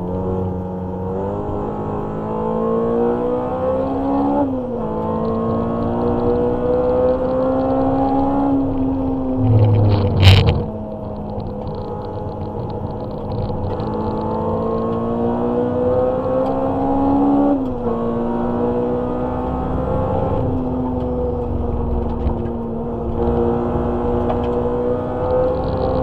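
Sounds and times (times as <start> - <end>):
car engine revving under acceleration: 0.0 - 26.0.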